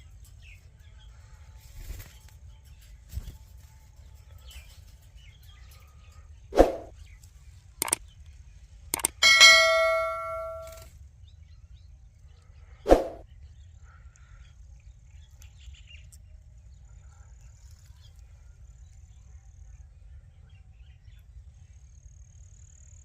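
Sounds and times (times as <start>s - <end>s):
ringing metallic clang: 9.0s - 10.8s.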